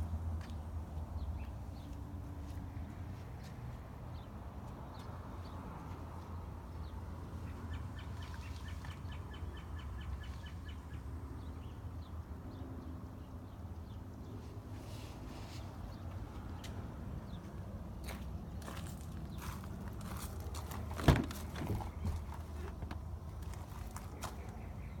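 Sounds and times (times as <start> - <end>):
songbird chirping: 15.5 - 25.0.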